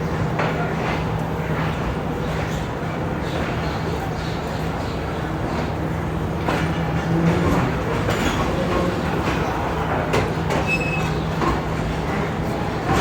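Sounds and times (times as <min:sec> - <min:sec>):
train low hum: 0:00.0 - 0:13.0
train wheels clacking over rail joints: 0:05.4 - 0:13.0.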